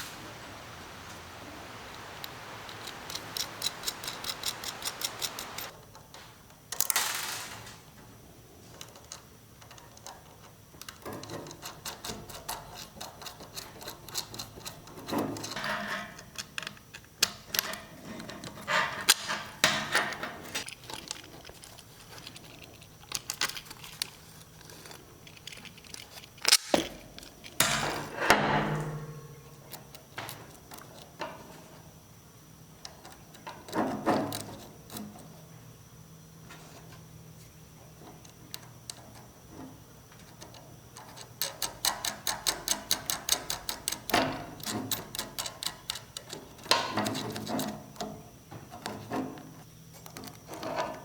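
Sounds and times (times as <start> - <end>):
hiss: 0.0 - 5.7.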